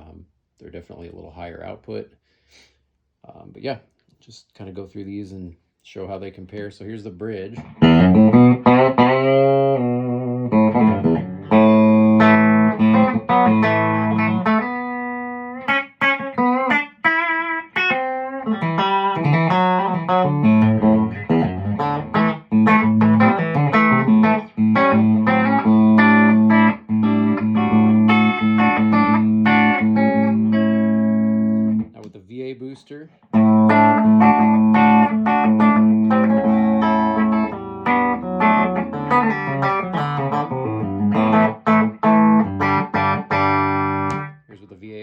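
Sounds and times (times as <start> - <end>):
electric guitar playing: 7.6 - 32.0, 33.3 - 44.4.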